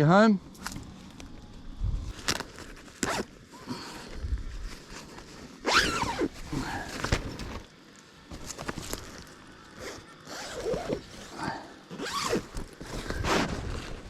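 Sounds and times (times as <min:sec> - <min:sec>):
zipper pulled open: 0:02.2 - 0:03.3, 0:05.6 - 0:07.6, 0:09.8 - 0:14.0.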